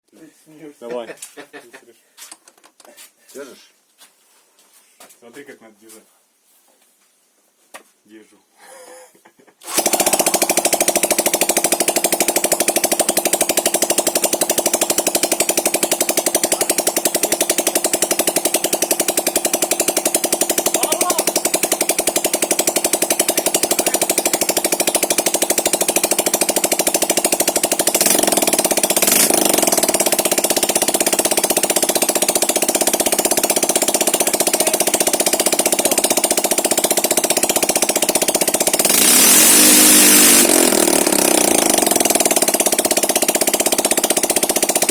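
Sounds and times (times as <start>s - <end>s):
scooter engine running: 9.6s - 44.9s.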